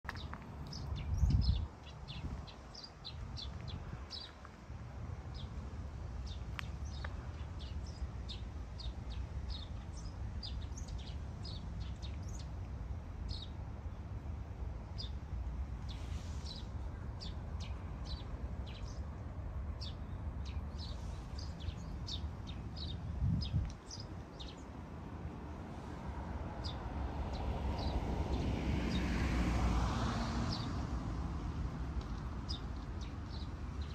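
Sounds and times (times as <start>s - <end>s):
small birds chirping: 0.1s - 4.6s, 6.2s - 14.1s, 15.8s - 19.2s, 19.8s - 24.8s, 26.6s - 28.0s, 32.0s - 33.9s.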